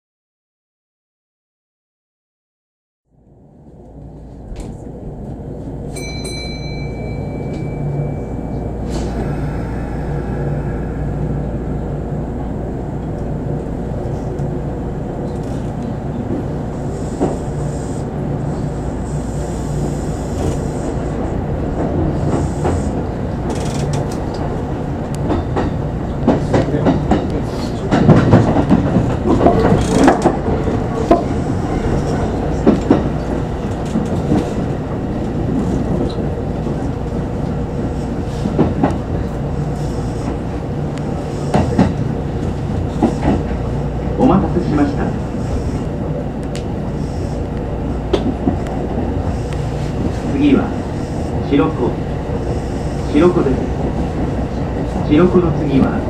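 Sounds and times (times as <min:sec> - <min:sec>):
wheels clattering over rail joints: 0:27.9 - 0:34.6.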